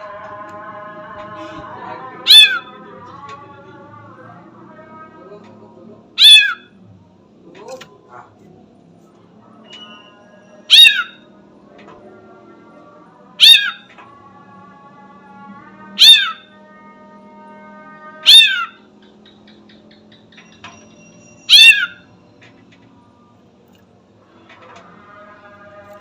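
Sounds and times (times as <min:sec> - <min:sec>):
bird giving meow-like calls: 0:02.3 - 0:02.7, 0:06.2 - 0:06.7, 0:10.7 - 0:11.2, 0:13.4 - 0:13.8, 0:15.9 - 0:16.5, 0:18.1 - 0:18.8, 0:21.5 - 0:22.0.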